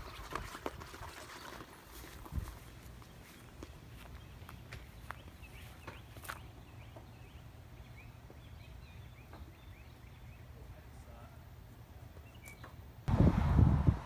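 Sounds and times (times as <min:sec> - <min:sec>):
small birds chirping: 0:02.3 - 0:13.0
steady low rumble: 0:13.1 - 0:14.0.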